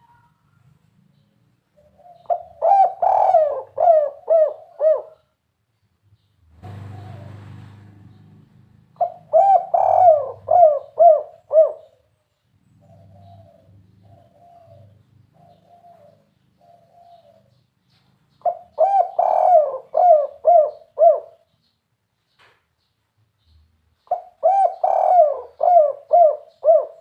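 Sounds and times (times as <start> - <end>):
dove cooing: 1.7 - 5.4, 6.6 - 8.3, 8.9 - 12.1, 12.8 - 17.6, 18.4 - 21.5, 24.0 - 27.0.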